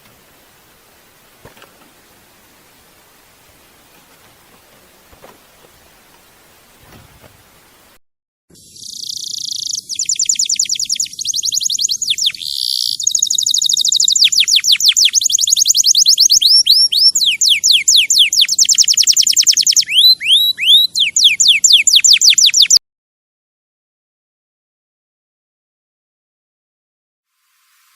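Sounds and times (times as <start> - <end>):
songbird singing: 8.5 - 22.8.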